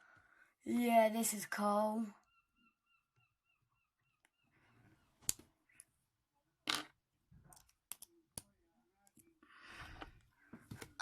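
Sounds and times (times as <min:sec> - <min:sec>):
plastic pieces clicking: 0:07.5 - 0:08.5.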